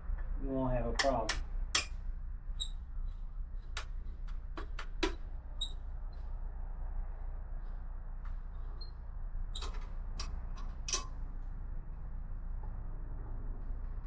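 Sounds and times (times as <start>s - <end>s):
steady low hum: 0.0s - 14.0s
clicks and squeaks of parts: 1.0s - 6.3s, 8.2s - 11.2s.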